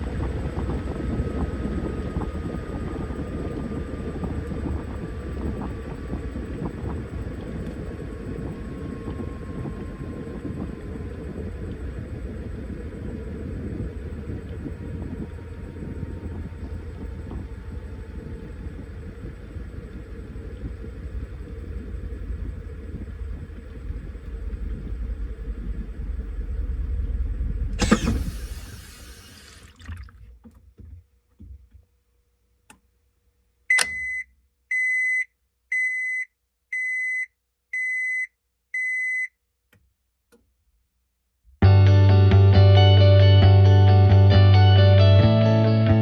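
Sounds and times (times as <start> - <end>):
washing machine rumble: 0.0 - 31.7.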